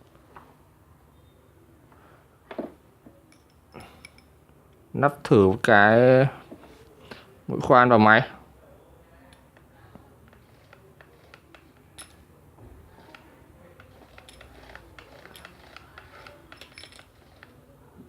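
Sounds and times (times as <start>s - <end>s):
drill bit clicking in chuck: 13.0s - 17.6s.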